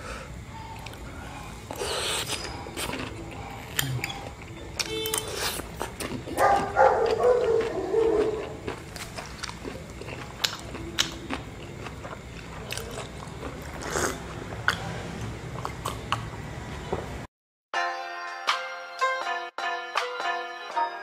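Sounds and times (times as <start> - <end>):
low room noise: 0.0 - 17.3
man chewing food: 0.5 - 16.8
mouth clicks and smacks: 1.7 - 16.4.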